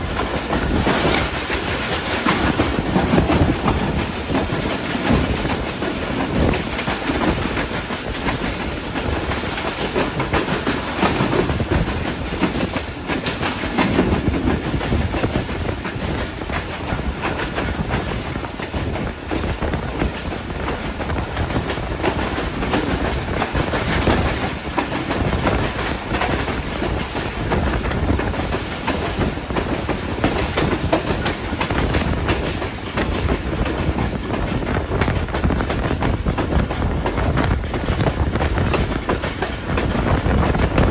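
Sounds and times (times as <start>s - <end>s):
train wheels clattering over rails: 0.0s - 40.9s.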